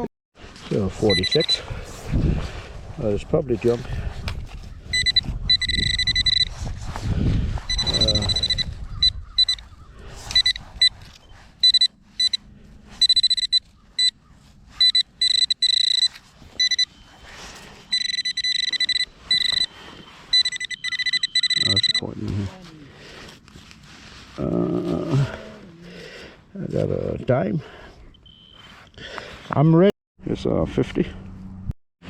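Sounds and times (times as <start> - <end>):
metal detector pinpointer beeping: 1.0 - 1.7, 4.9 - 6.6, 7.6 - 22.5, 28.1 - 28.8
rustling and handling noise: 9.4 - 26.3.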